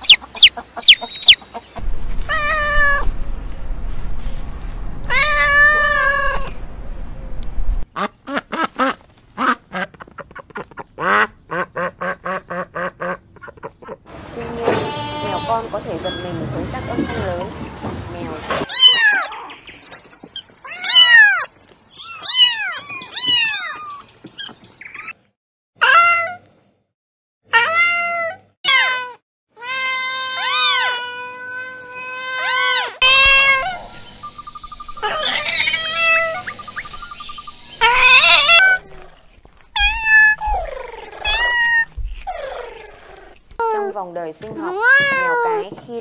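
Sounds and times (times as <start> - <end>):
kittens meowing: 27.6 - 34.0, 35.0 - 36.6, 37.8 - 39.2, 39.8 - 42.9.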